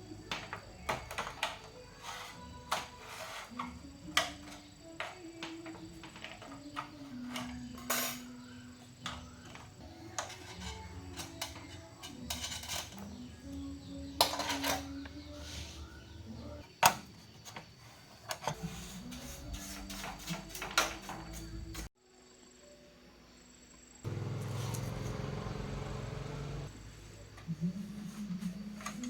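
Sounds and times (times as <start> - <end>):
faint background music: 0.0 - 29.0
tools and parts clicking: 0.2 - 15.2.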